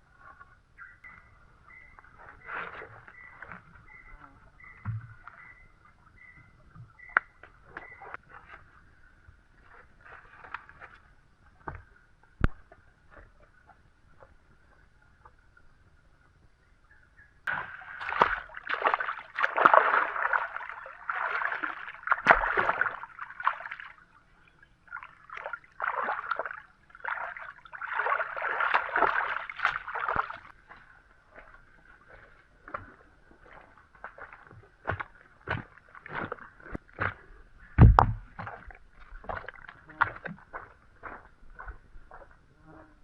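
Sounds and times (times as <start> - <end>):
water sloshing and splashing: 17.5 - 42.4.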